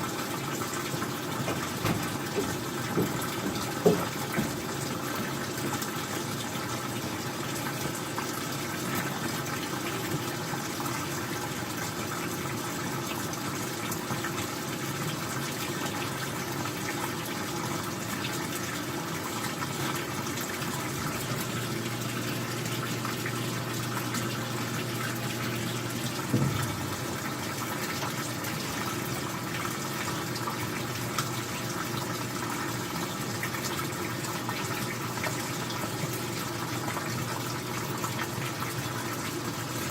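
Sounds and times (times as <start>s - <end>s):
water rushing through washing machine: 0.0s - 39.9s
short knock: 1.8s - 4.6s, 26.3s - 26.9s.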